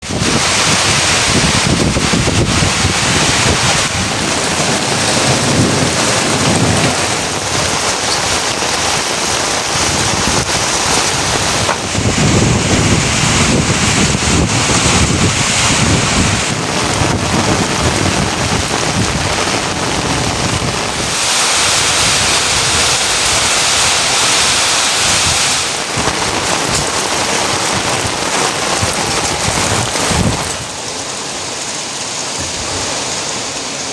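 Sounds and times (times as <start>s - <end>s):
heavy rain falling: 0.0s - 33.9s
low rumbles: 0.1s - 23.9s.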